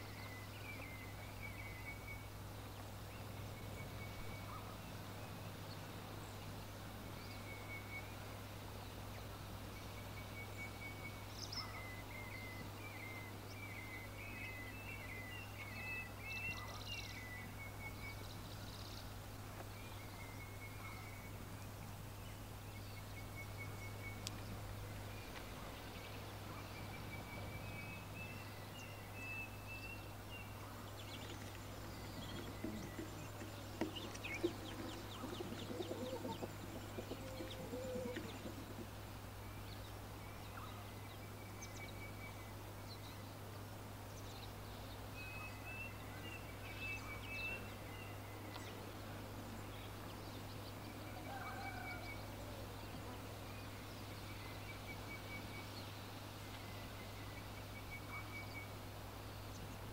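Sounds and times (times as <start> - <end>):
steady low hum: 0.0 - 45.2
lower bird calls with clicks: 23.0 - 28.1, 31.0 - 39.0, 46.8 - 48.8
birds calling high notes: 31.3 - 38.8.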